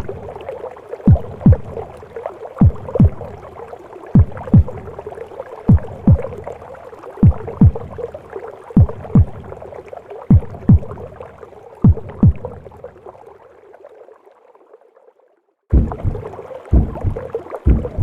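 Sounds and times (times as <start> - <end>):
heartbeat thuds: 1.1 - 1.8, 2.6 - 3.3, 4.2 - 4.9, 5.7 - 6.4, 7.2 - 8.0, 8.8 - 9.5, 10.3 - 11.0, 11.8 - 12.6, 15.7 - 18.0.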